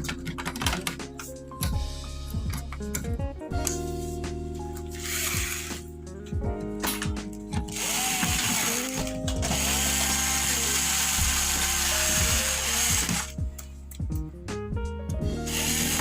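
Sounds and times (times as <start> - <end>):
background music with held notes: 0.0 - 16.0
power screwdriver ratcheting: 5.0 - 5.8, 7.6 - 13.3, 15.5 - 16.0.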